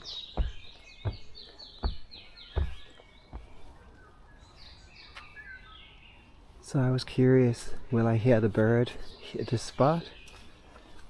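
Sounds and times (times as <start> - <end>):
soft footsteps thudding: 0.0 - 3.8
songbird singing: 0.0 - 11.0.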